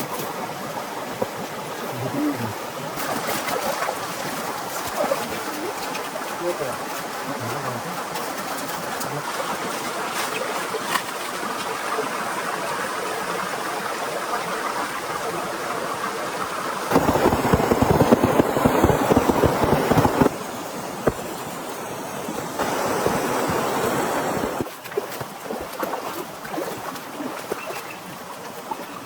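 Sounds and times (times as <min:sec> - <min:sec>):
rushing with dense patter: 0:00.0 - 0:29.0
steady rain: 0:04.0 - 0:24.7.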